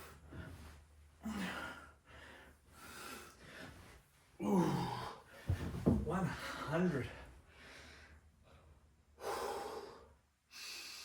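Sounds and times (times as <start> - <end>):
man groaning with effort: 4.4 - 5.2
man breathing hard: 7.5 - 11.0.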